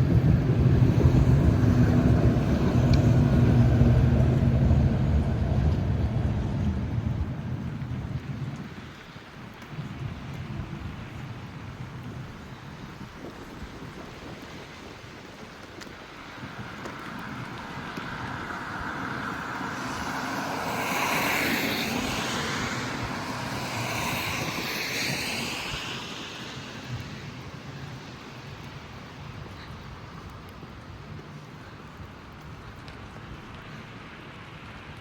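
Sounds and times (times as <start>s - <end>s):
vehicle passing by: 0.0s - 8.0s, 17.1s - 27.0s.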